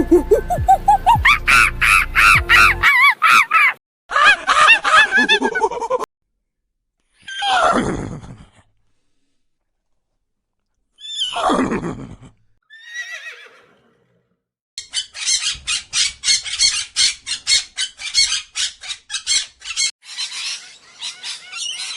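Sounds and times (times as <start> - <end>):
harsh squawking calls: 0.9 - 5.4, 14.8 - 21.9
horse whinnying: 7.2 - 8.2, 11.0 - 14.2.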